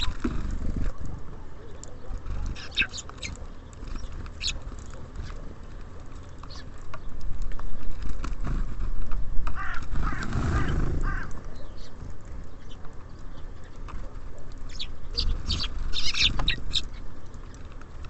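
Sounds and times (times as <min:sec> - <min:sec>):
birds chirping: 0:00.0 - 0:18.0
harsh bird calls: 0:01.6 - 0:05.4, 0:09.5 - 0:13.8, 0:14.6 - 0:17.1.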